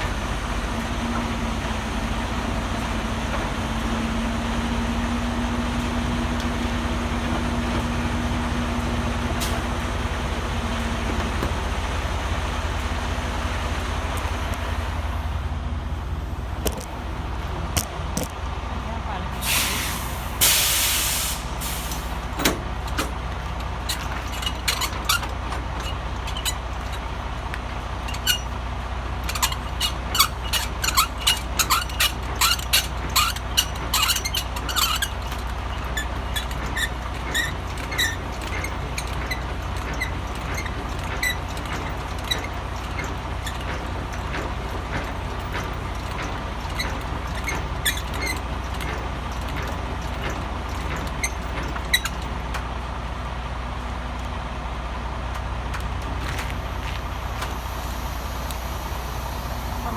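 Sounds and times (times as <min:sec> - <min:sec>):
diesel truck engine running: 0:00.0 - 0:59.9
clicks and short squeaks: 0:21.9 - 0:27.1, 0:28.0 - 0:28.6, 0:29.2 - 0:52.7.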